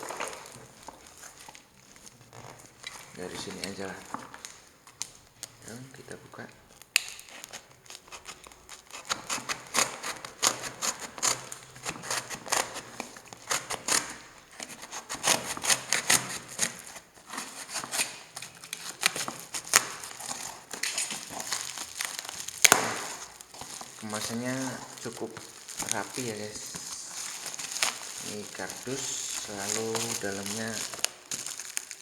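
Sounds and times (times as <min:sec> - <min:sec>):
knife cutting cardboard and tape: 0:07.0 - 0:31.1.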